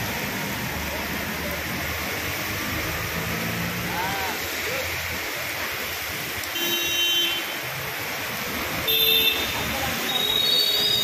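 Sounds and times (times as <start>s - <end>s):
cars driving through water: 0.0s - 11.0s
heavy rain pouring: 0.0s - 11.0s
vehicle horn honking: 6.6s - 7.6s, 8.9s - 9.6s.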